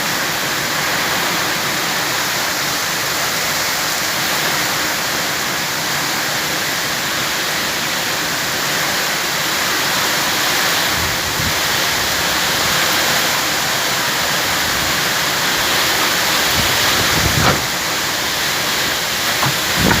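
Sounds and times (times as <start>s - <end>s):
heavy rain pouring: 0.0s - 20.0s
strong wind gusts: 10.8s - 12.9s, 14.4s - 20.0s.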